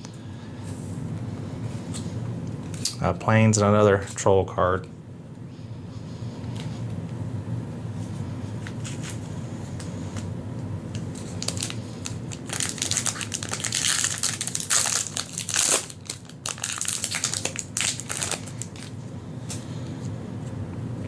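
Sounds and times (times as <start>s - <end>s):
foil wrapper crinkling: 10.9s - 19.0s.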